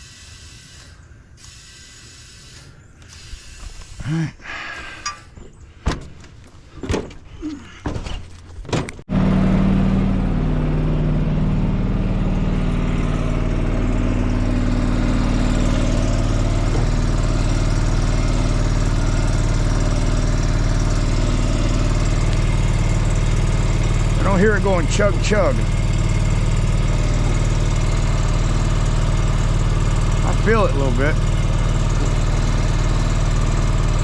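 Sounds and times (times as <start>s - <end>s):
motor chugging: 9.1s - 34.0s.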